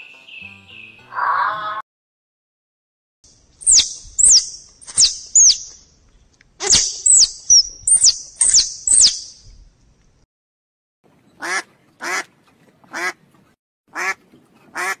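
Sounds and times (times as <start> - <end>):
squirrel chirping: 3.6 - 5.8, 6.6 - 9.4.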